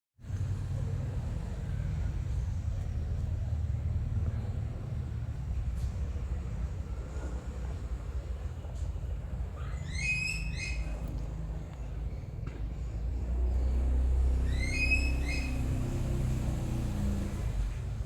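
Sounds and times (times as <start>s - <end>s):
bird chirping: 9.6s - 11.1s, 14.3s - 16.0s.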